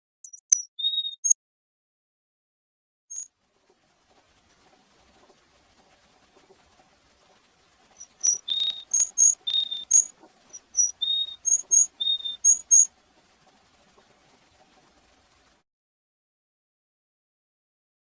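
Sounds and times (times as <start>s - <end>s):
bird singing whistles: 0.2s - 1.4s, 7.9s - 12.9s.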